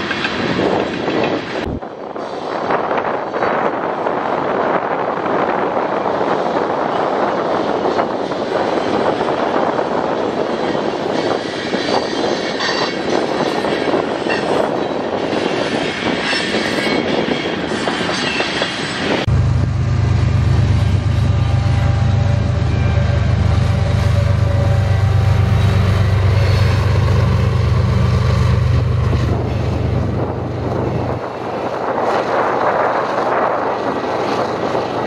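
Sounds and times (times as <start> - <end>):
train wheels clicking on rails: 0.0 - 19.3
diesel locomotive rumble: 0.0 - 35.0.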